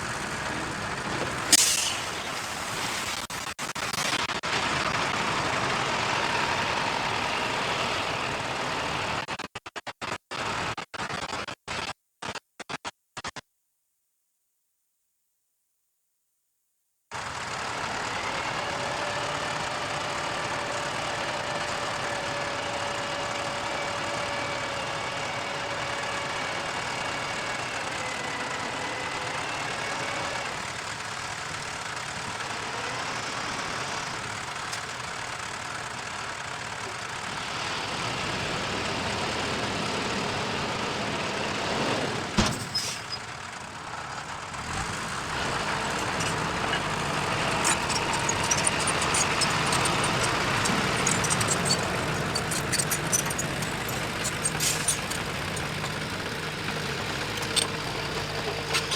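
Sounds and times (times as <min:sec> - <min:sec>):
diesel engine running: 0:00.0 - 0:09.2, 0:17.1 - 0:58.9
sharp clunk: 0:42.4 - 0:43.1.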